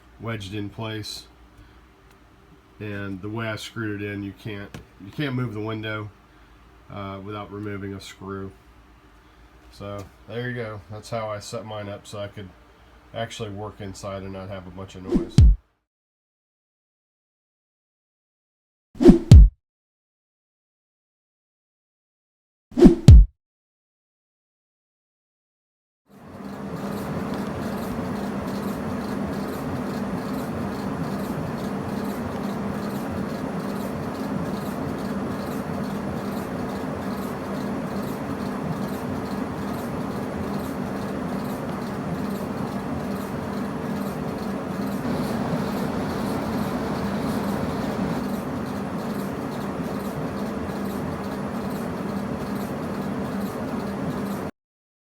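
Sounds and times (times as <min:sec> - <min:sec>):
exhaust fan rushing air: 0:26.2 - 0:54.5.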